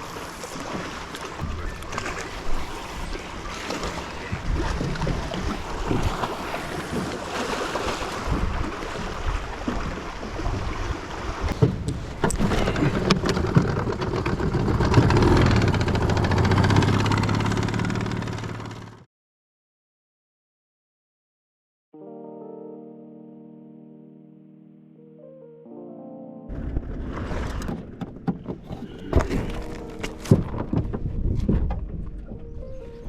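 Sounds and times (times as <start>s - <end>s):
waves slapping boat hull: 0.0s - 19.0s, 26.5s - 33.0s
wind on microphone: 1.4s - 17.2s, 28.5s - 33.0s
low motor hum: 11.8s - 19.0s, 26.5s - 33.0s.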